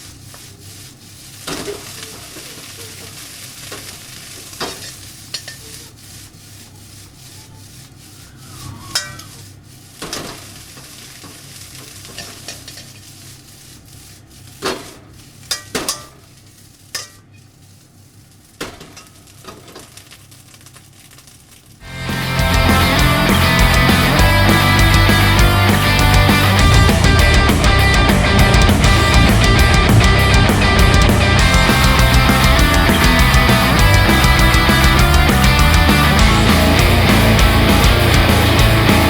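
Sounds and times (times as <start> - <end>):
fried rice sizzling in a pan: 0.0 - 26.7
utensil scraping a pan: 3.8 - 19.8.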